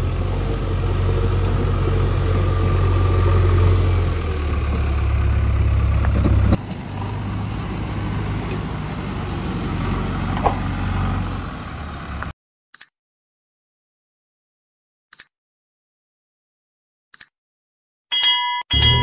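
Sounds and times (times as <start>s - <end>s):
diesel engine running: 0.0s - 12.3s, 18.7s - 19.0s.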